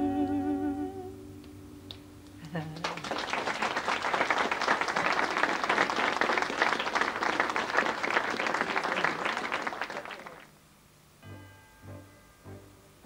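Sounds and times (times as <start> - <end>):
audience applauding: 2.5 - 10.5.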